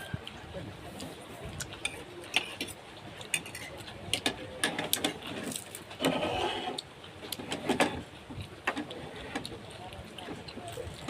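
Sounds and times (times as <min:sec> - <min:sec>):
scraping or rustling: 0:05.2 - 0:08.0.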